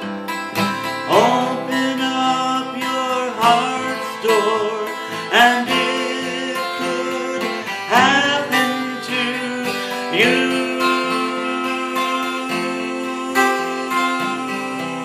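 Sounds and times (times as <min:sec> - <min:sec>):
acoustic guitar: 0:00.0 - 0:15.0
person singing gospel song: 0:01.0 - 0:15.0.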